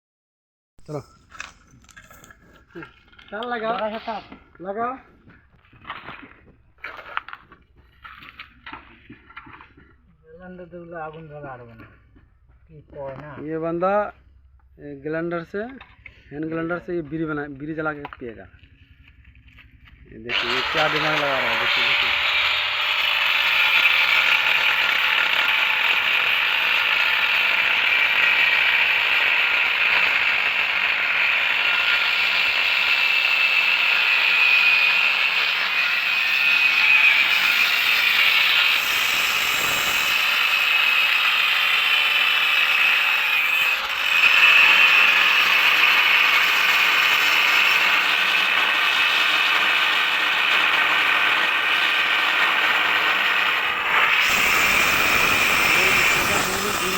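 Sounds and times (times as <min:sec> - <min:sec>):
angle grinder grinding: 0:18.6 - 0:56.9.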